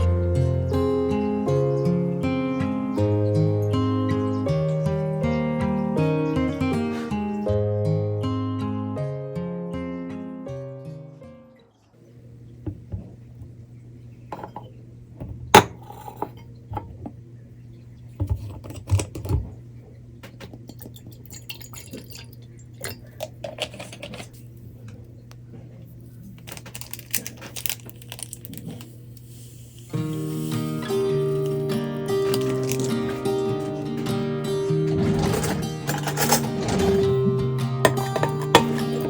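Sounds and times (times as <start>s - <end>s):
dishes and glasses clinking: 14.3s - 14.7s, 15.5s - 17.0s, 30.8s - 39.0s.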